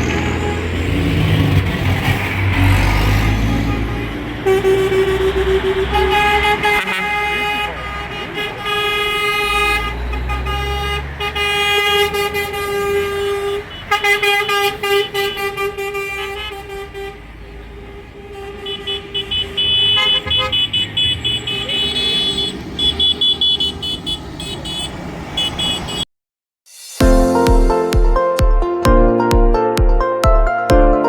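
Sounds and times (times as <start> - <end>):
vehicle horns honking: 0.0 - 1.4, 2.6 - 26.1
engines rumbling: 0.0 - 26.1.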